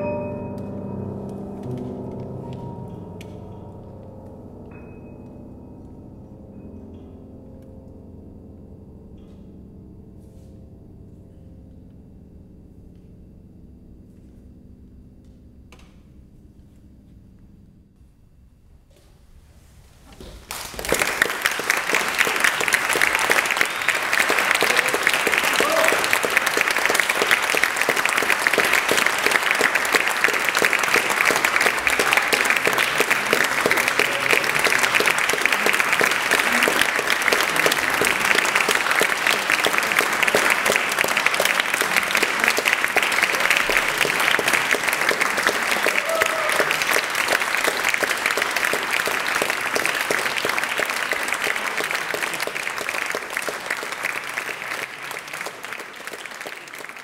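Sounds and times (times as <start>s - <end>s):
audience applauding: 20.2s - 57.0s.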